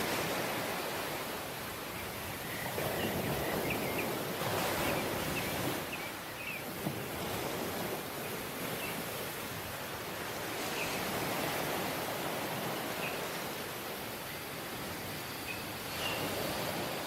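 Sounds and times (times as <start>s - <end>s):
waves washing in: 0.0s - 17.0s.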